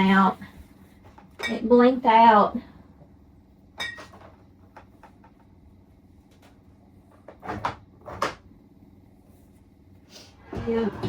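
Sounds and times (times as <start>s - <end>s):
cupboard doors opening and shutting: 7.2s - 8.5s, 10.4s - 11.0s.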